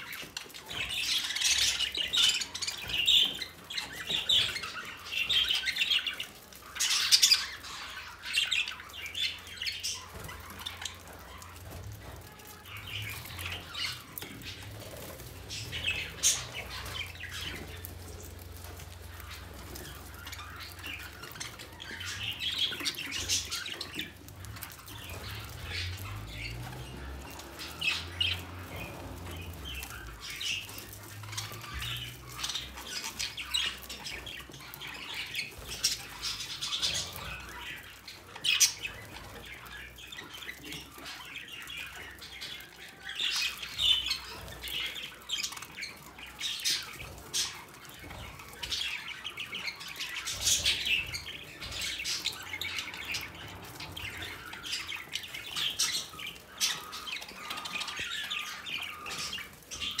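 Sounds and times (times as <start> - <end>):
birds chirping and squawking: 0.0 - 60.0.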